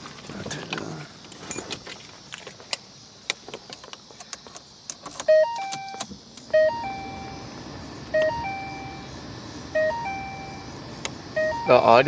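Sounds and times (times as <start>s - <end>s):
keys and switches clicking: 4.2s - 6.1s
car electronic three-note chime: 5.3s - 7.5s, 8.1s - 9.1s, 9.8s - 10.8s, 11.4s - 12.0s.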